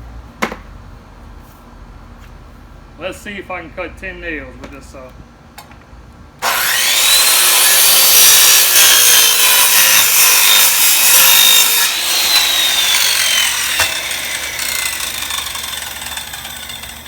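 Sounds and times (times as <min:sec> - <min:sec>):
circular saw cutting wood and nails: 0:06.4 - 0:17.0
saw motor whine spinning down: 0:06.4 - 0:17.0.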